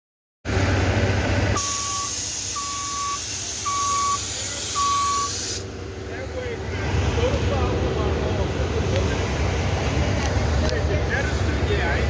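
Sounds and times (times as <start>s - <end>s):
bus engine rumble: 0.5s - 12.0s
warning beep: 1.6s - 5.4s
air hissing: 1.6s - 5.7s.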